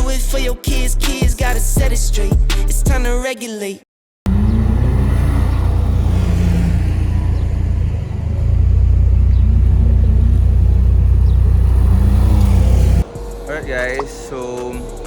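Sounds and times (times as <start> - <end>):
car engine idling: 4.3 - 15.0.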